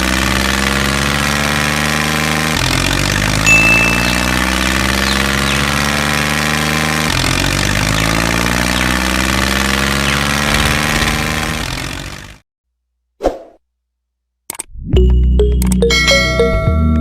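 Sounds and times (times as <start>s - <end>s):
tractor engine running: 0.0s - 12.4s.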